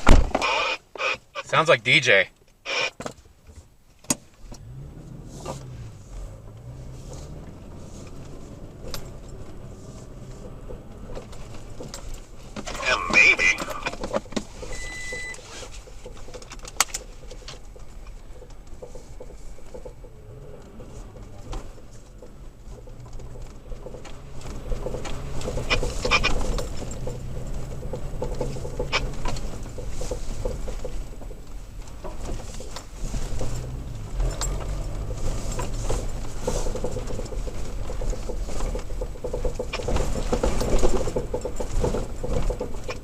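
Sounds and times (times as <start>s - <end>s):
engine and road rumble: 0.0s - 43.0s
clicks and knocks over bumps: 6.4s - 43.0s.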